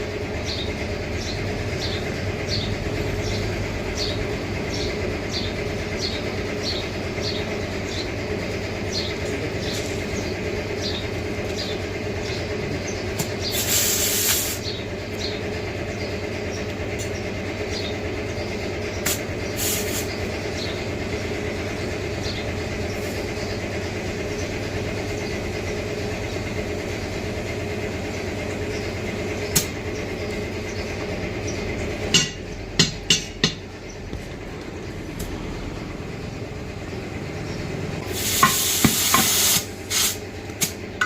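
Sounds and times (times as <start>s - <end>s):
air hissing: 13.5s - 14.7s, 19.1s - 20.2s, 38.0s - 40.8s.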